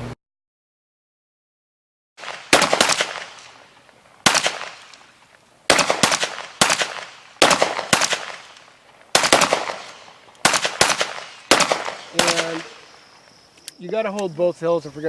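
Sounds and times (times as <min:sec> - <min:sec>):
gunshots with echo: 0:02.2 - 0:03.6, 0:04.2 - 0:04.9, 0:05.7 - 0:13.0.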